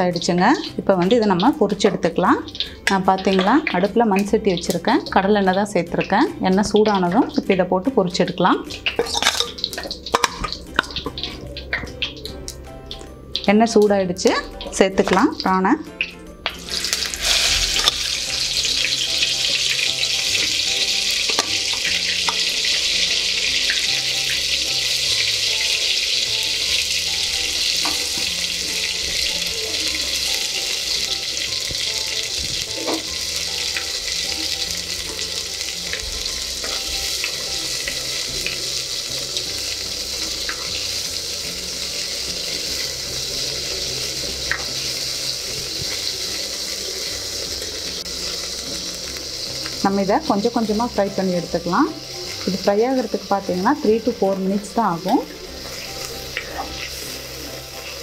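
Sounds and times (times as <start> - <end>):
prawns sizzling in hot oil: 0.0 - 58.0
oil popping and spitting: 16.0 - 18.1.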